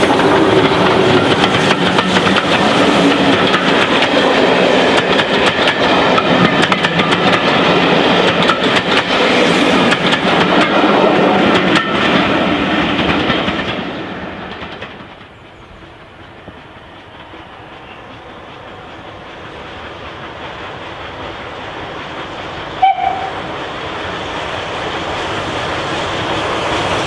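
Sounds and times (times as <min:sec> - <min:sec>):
train wheels clattering over rail joints: 0:00.0 - 0:23.2.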